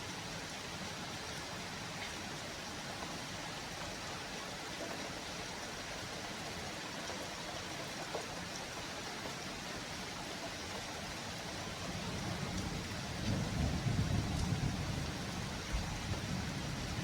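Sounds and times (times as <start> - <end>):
thunder rumbling: 12.3 - 17.0.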